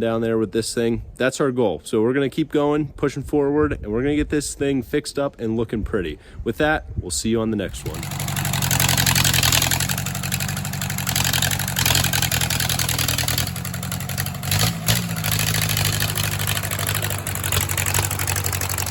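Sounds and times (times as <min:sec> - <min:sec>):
bulldozer engine idling: 0:07.7 - 0:18.9.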